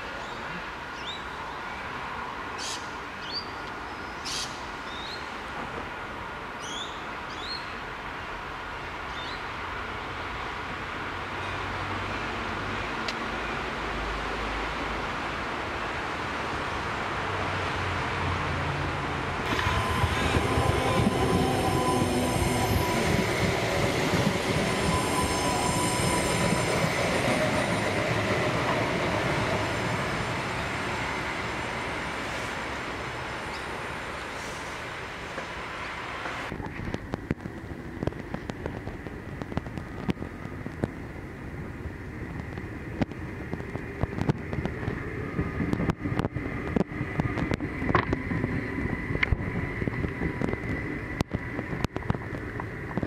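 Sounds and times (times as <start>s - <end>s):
railcar engine hum: 0.0s - 53.0s
wheels squealing: 19.5s - 31.4s
whining tones: 19.5s - 32.2s.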